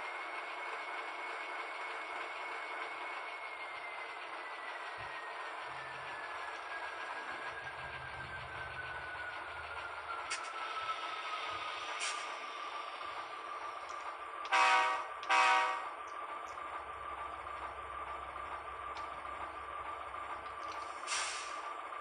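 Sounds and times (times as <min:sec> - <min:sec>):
diesel horn blasts from small speaker: 0:14.5 - 0:15.9
steady engine hiss: 0:20.6 - 0:21.7.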